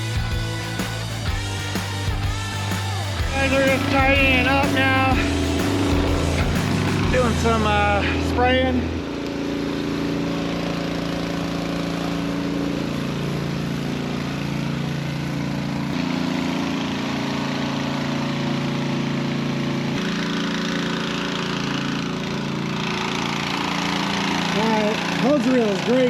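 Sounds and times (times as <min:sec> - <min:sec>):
spray hissing: 0:00.0 - 0:08.3
small engine running: 0:00.0 - 0:26.0.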